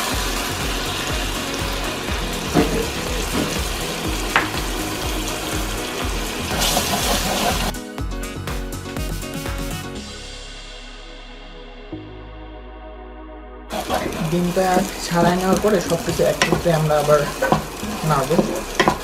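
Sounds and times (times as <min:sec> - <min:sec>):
egg sizzling in oil: 0:00.0 - 0:07.8, 0:13.7 - 0:19.0
background music with steady beat: 0:00.0 - 0:19.0.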